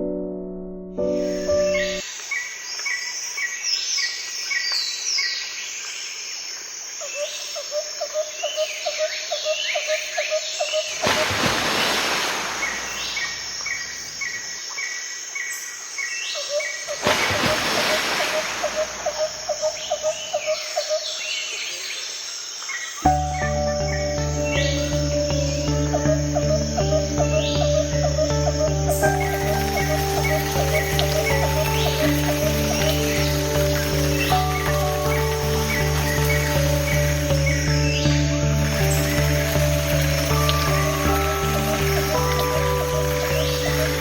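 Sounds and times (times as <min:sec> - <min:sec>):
birds chirping and calling: 0:15.4 - 0:21.8, 0:22.7 - 0:44.0.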